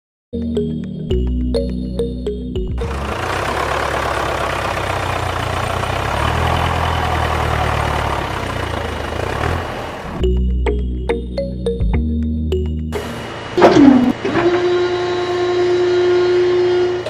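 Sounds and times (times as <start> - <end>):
engine running with hiss: 2.8 - 10.2, 12.9 - 17.0.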